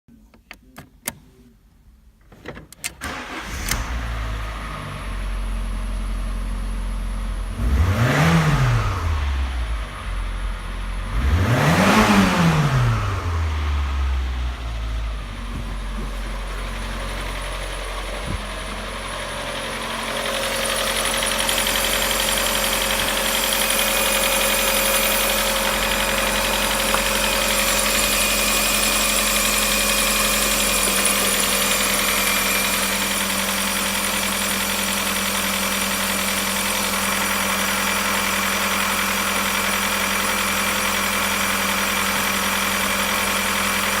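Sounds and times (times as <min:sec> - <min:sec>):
car engine idling: 0:12.3 - 0:44.0.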